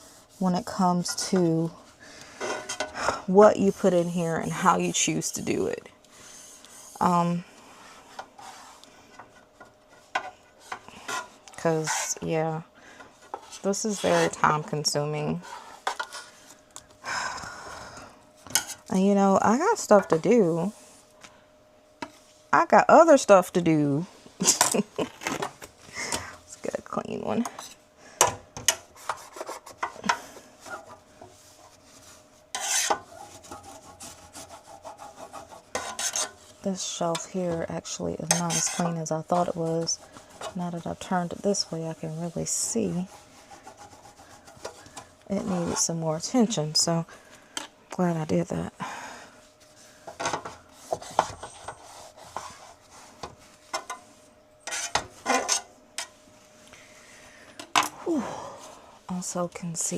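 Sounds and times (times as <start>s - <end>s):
shelf being scrubbed and scraped: 0.0s - 1.8s, 3.4s - 8.8s, 9.9s - 12.6s, 13.2s - 16.5s, 28.9s - 46.9s, 49.6s - 53.9s, 54.6s - 56.1s
scrubbing a metal shelf: 28.8s - 46.9s.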